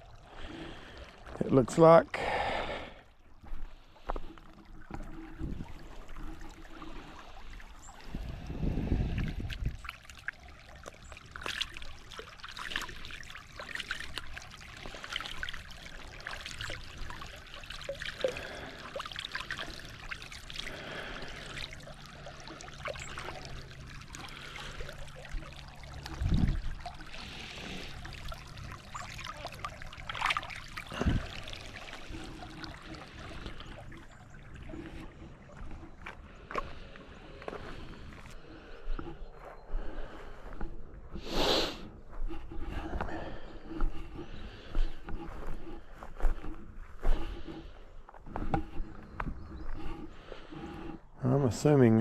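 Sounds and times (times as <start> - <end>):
water trickling: 0.0 - 40.8.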